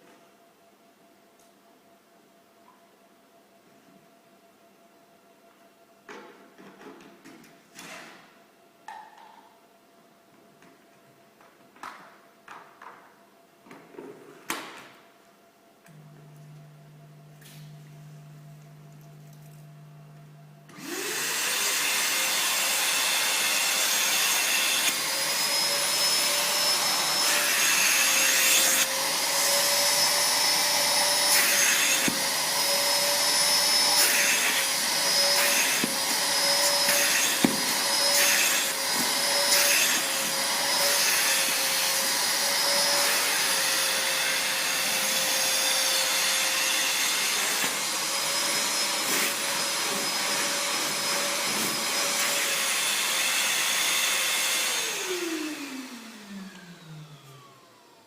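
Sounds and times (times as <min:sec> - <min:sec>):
vacuum cleaner motor whining: 0:15.9 - 0:58.0.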